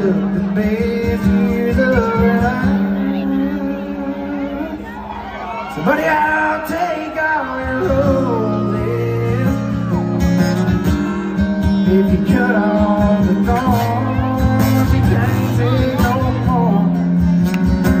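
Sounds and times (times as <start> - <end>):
acoustic guitar strumming: 0.0 - 4.8, 5.7 - 18.0.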